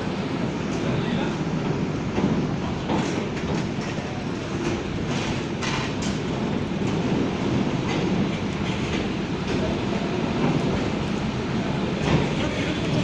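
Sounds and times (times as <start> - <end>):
train rumbling on rails: 0.0 - 13.0
wheels clacking over rail joints: 0.7 - 9.8.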